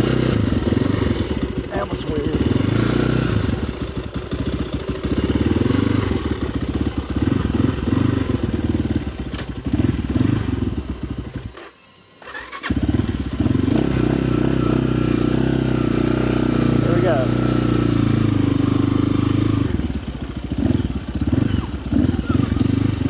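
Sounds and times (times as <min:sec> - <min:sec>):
dirt bike engine running: 0:00.0 - 0:11.7, 0:12.3 - 0:23.0.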